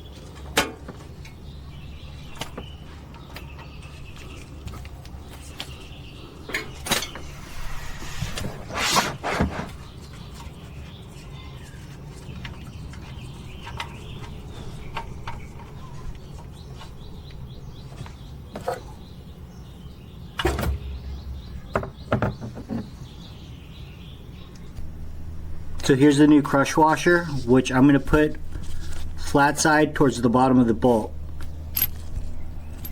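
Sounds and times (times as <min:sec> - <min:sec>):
low hum: 0:05.2 - 0:09.9, 0:23.8 - 0:32.9.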